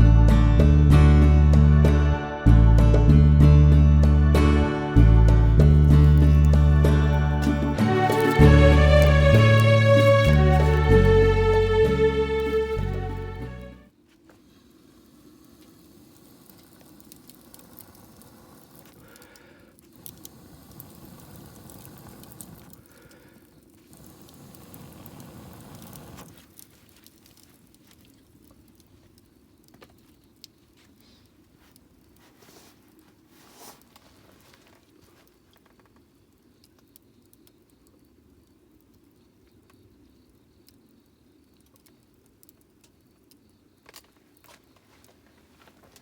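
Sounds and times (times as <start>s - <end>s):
campfire crackling and popping: 5.0s - 46.0s
soft fire hiss: 5.0s - 46.0s
low rushing noise: 5.2s - 13.8s.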